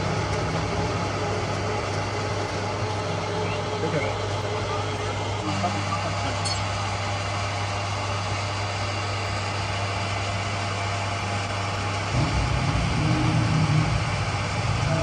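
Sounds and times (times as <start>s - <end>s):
machinery humming: 0.0s - 15.0s
rough low rumble: 11.7s - 15.0s.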